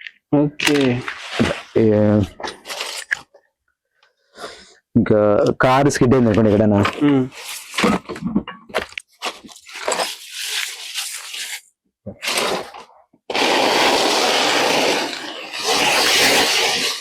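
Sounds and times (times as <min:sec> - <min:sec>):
loud screeching drags: 0:13.3 - 0:17.0.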